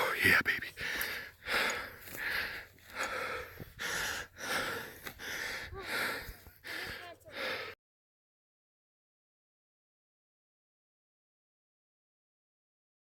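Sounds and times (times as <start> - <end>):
person breathing hard: 0.7 - 7.8.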